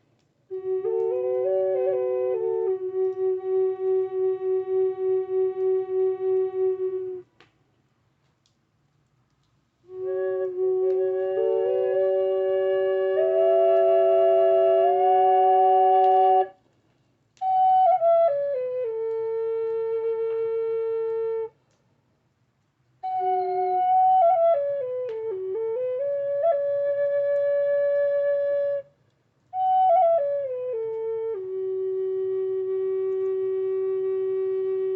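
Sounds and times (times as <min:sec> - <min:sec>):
flute playing slow melody: 0:00.0 - 0:07.4, 0:09.8 - 0:16.6, 0:17.4 - 0:21.7, 0:23.0 - 0:34.9.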